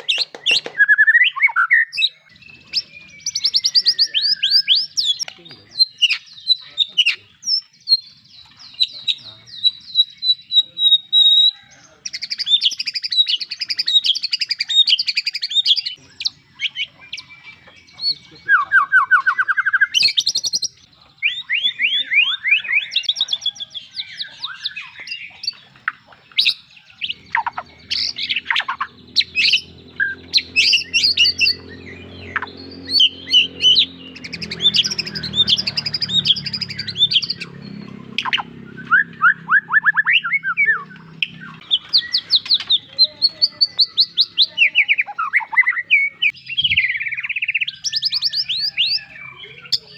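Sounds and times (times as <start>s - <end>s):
songbird singing varied song: 0.0s - 49.9s.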